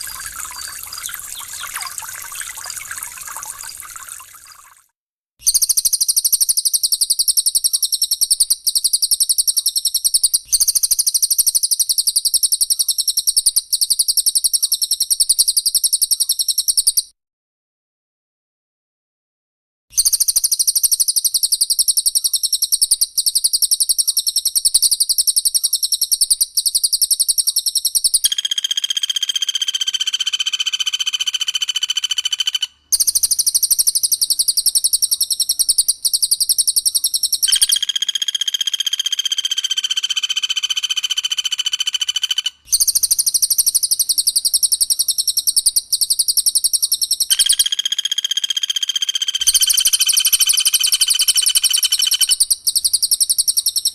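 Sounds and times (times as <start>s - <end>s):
high-pitched rattling bird trill: 0.0s - 4.6s, 20.0s - 53.9s
buzzy whistled bird tones: 0.0s - 4.8s, 21.3s - 53.9s.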